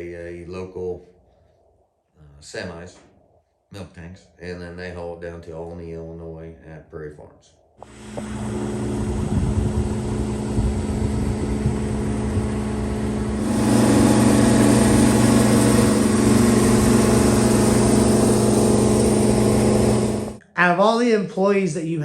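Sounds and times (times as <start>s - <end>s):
engine humming steadily: 7.8s - 20.4s.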